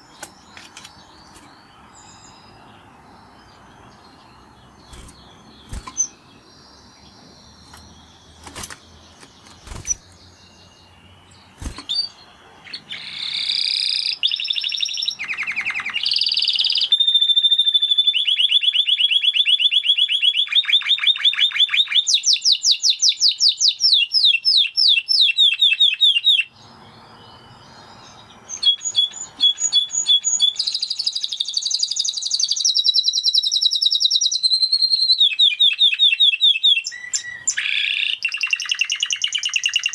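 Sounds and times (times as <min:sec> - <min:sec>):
canary singing fast trills: 0:00.0 - 0:39.9
sharp clicks: 0:00.1 - 0:01.5.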